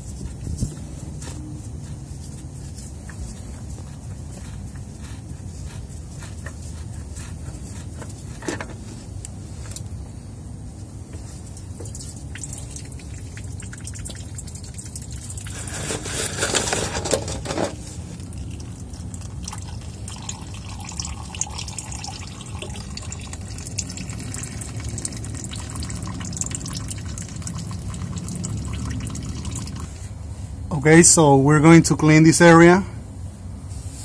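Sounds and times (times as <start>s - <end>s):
oil dripping into a bucket: 11.1s - 30.0s
rush of oil: 11.2s - 30.2s.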